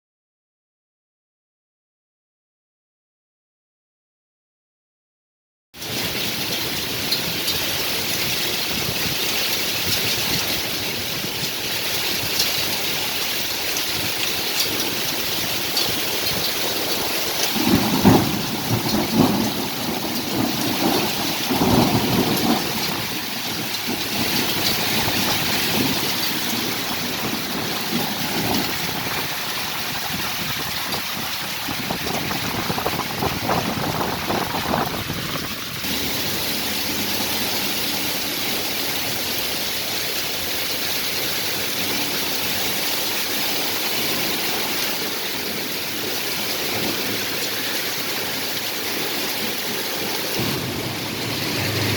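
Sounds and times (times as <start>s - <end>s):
heavy rain pouring: 5.8s - 51.9s
thunder rumbling: 5.9s - 39.2s, 46.0s - 51.9s.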